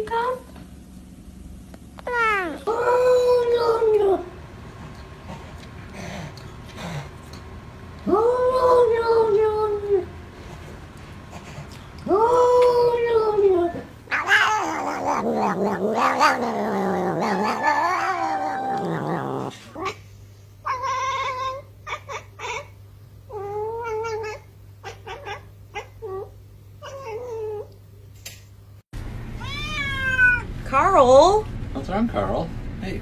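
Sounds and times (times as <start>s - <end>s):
cat yowling and meowing: 2.1s - 4.0s, 12.1s - 20.0s, 20.6s - 22.7s, 23.3s - 27.7s, 29.4s - 30.5s.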